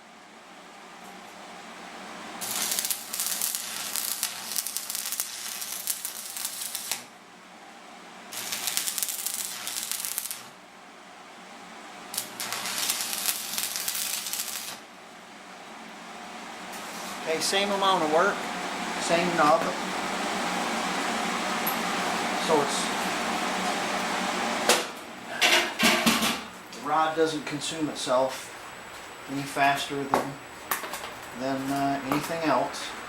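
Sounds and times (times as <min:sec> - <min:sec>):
steady low hum: 0:00.0 - 0:33.0
welding arc crackling and sizzling: 0:02.4 - 0:07.1, 0:08.3 - 0:10.6, 0:12.1 - 0:15.0, 0:16.6 - 0:24.7, 0:30.7 - 0:32.9.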